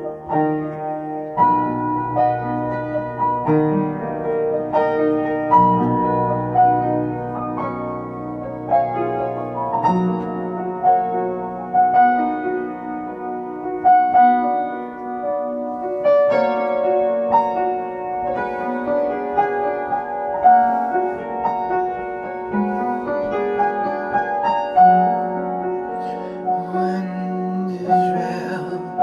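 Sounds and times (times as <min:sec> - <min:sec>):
piano playing slow chords: 0:00.0 - 0:29.0.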